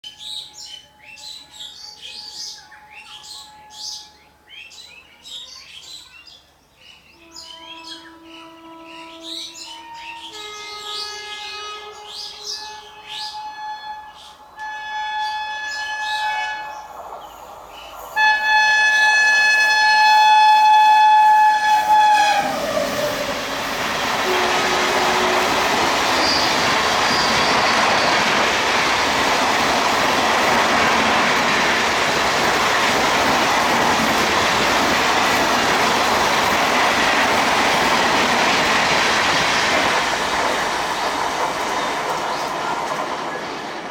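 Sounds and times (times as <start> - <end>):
locomotive horn blasts: 7.2 - 16.9, 18.2 - 28.0
train coaches rushing and clattering: 14.3 - 43.9.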